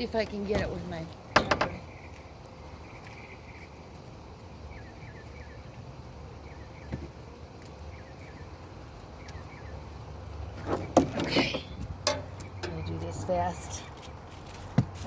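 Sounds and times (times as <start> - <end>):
small bird chirping: 1.7 - 10.0, 12.2 - 14.2.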